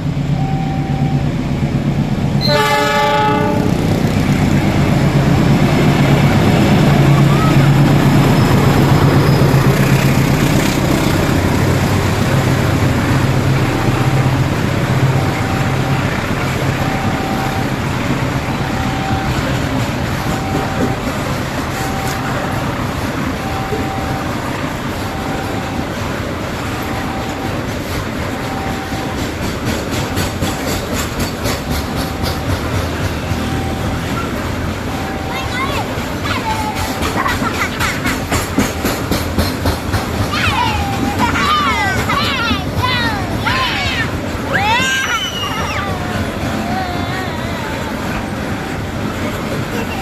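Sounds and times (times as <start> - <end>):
train passing: 0.0 - 50.0
short repeating tone: 0.3 - 1.3, 18.6 - 19.6, 20.2 - 21.1, 21.7 - 22.8, 23.4 - 24.4, 25.1 - 25.9, 26.7 - 27.7, 28.3 - 29.3, 32.0 - 37.2
wheels clicking over rail joints: 4.1 - 50.0.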